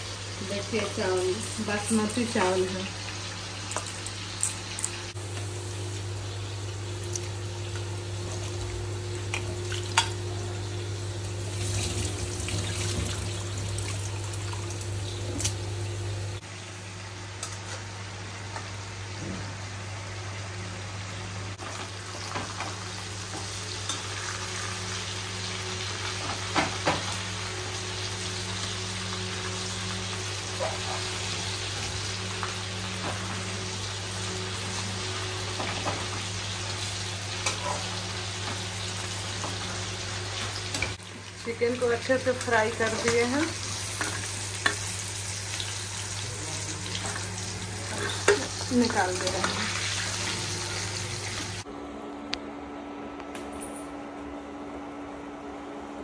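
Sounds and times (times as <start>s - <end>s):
chicken sizzling in hot oil: 0.0s - 51.7s.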